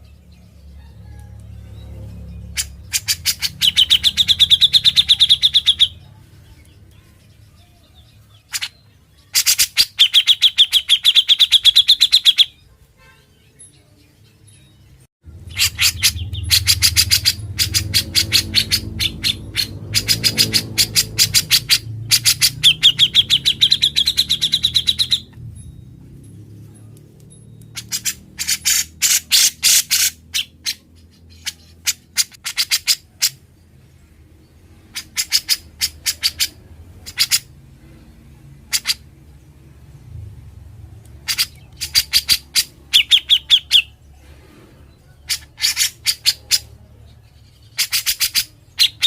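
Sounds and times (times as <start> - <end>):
bird singing chattering phrases: 2.3 - 25.7, 27.6 - 39.3, 40.8 - 49.0
buzzing rattled bird trill: 15.5 - 30.8.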